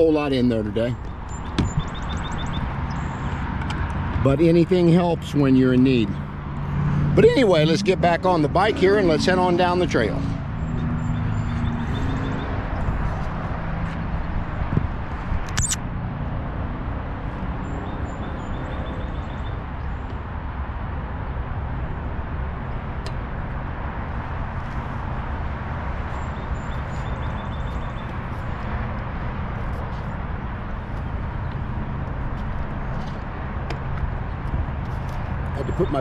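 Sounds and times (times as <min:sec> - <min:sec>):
bird chirping: 0:01.0 - 0:03.4, 0:15.6 - 0:15.8
wind rumble on microphone: 0:01.0 - 0:04.3, 0:10.4 - 0:21.3
sharp click: 0:15.5 - 0:15.8.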